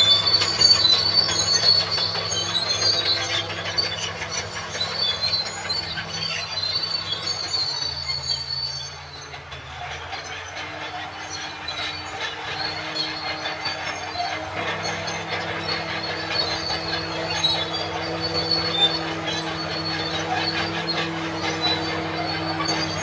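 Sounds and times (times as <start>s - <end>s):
bulldozer diesel engine: 0.0s - 23.0s
steel tracks squealing and clanking: 0.0s - 23.0s.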